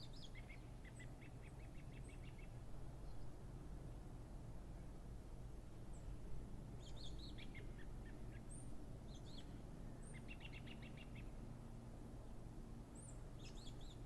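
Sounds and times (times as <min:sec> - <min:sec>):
small birds chirping: 0:00.0 - 0:03.3, 0:06.8 - 0:11.4, 0:13.0 - 0:14.0.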